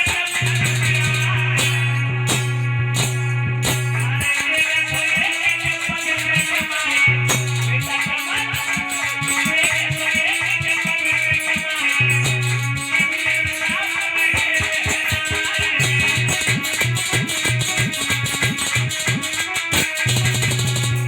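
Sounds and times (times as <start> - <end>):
plucked-string melody: 0.0 - 21.0
steady drum beat: 0.0 - 21.0
sustained bass notes: 0.4 - 4.3.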